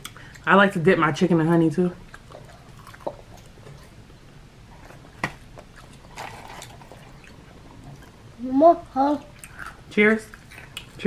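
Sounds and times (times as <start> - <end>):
chewing with wet mouth clicks: 2.0 - 4.0, 5.5 - 8.2, 9.2 - 11.0.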